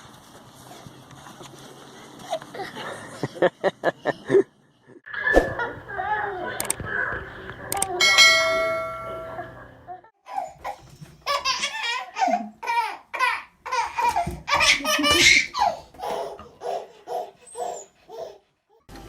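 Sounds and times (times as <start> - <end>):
baby laughing: 10.3 - 18.4.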